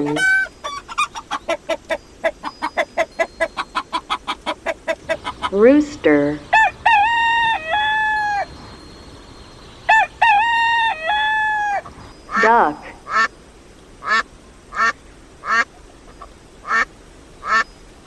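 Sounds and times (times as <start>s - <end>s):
chicken clucking: 0.0s - 5.7s
rooster crowing: 6.5s - 8.6s, 9.9s - 11.9s.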